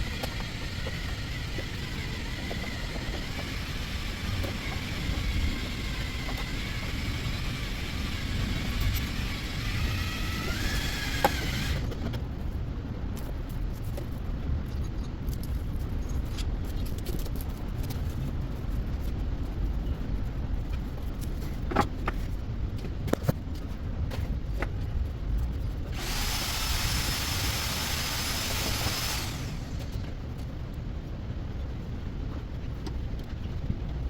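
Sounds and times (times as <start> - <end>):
power tool hissing and whining: 0.0 - 12.0, 26.0 - 30.1.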